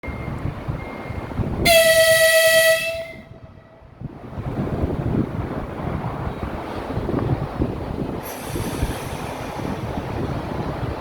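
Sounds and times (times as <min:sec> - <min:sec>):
train rumbling on rails: 0:00.0 - 0:11.0
electric train horn blast: 0:01.6 - 0:03.4.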